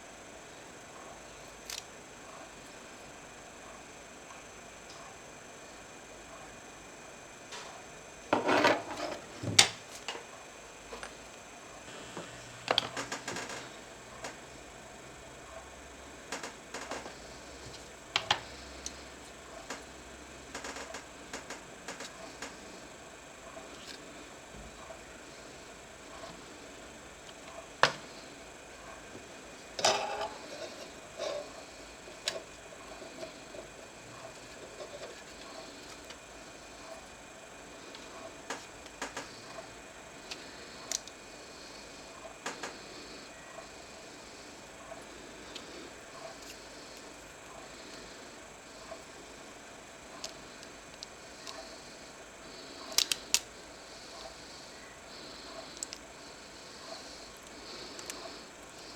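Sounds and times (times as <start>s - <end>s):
small hard parts clicking: 12.2s - 14.4s, 52.9s - 53.6s, 57.0s - 58.9s
small parts clattering: 29.8s - 31.5s, 52.9s - 53.5s
laptop parts rustling: 29.8s - 37.1s, 50.1s - 58.9s.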